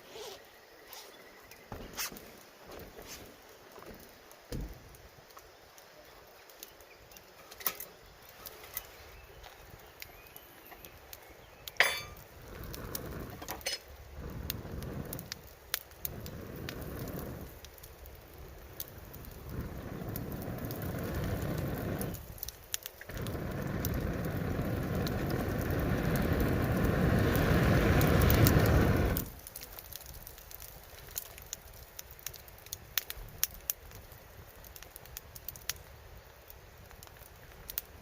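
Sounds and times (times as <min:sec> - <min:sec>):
wood fire crackling and popping: 0:00.0 - 0:38.0
gusts of rushing air: 0:19.0 - 0:22.4, 0:23.1 - 0:29.4.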